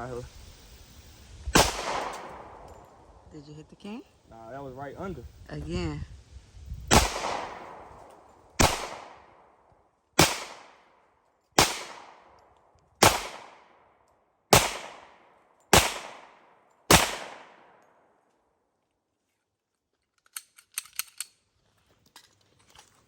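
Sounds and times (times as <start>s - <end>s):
pistol shots with echo: 1.6s - 2.8s, 6.9s - 8.0s, 8.6s - 9.5s, 10.2s - 10.9s, 11.6s - 12.3s, 13.0s - 13.8s, 14.5s - 17.8s.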